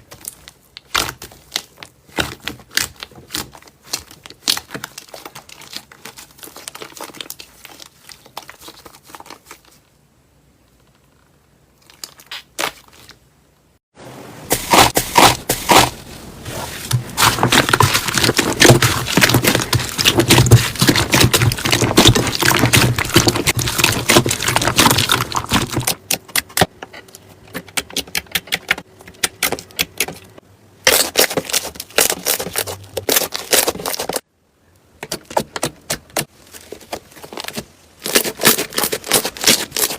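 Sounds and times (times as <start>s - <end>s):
slime crackling and popping: 17.2s - 26.7s.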